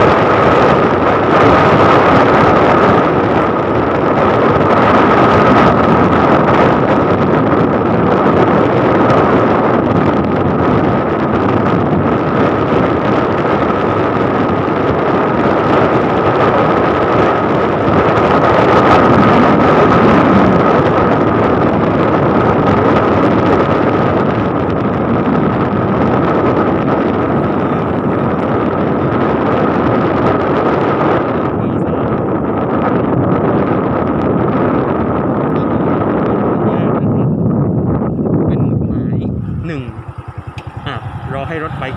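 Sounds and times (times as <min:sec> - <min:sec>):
motorcycle engine: 0:00.0 - 0:36.5, 0:37.4 - 0:41.9
road noise: 0:00.0 - 0:41.9
wind rushing over microphone: 0:00.0 - 0:41.9
thin steady whine: 0:27.0 - 0:29.8, 0:38.5 - 0:41.9.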